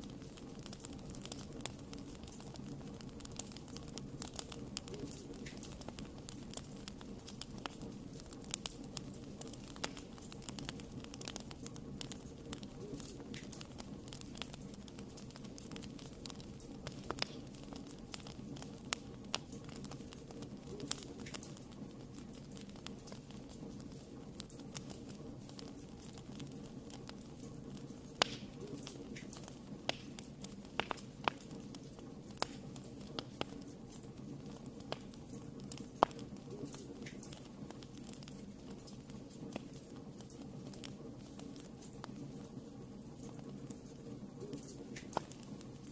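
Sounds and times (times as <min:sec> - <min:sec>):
low rumble of burning fire: 0:00.0 - 0:45.9
wood fire crackling and popping: 0:00.0 - 0:45.9.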